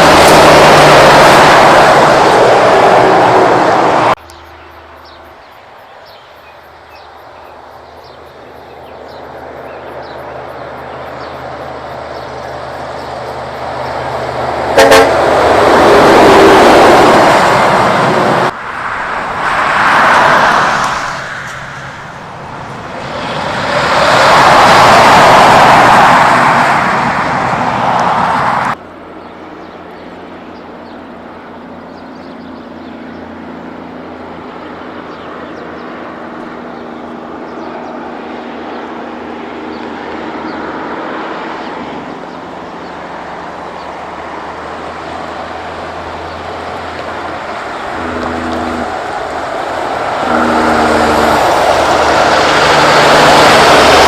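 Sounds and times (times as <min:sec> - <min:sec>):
trucks passing on road: 0:00.0 - 0:54.0
truck horn toot: 0:14.7 - 0:15.4, 0:47.8 - 0:49.3, 0:50.0 - 0:53.7.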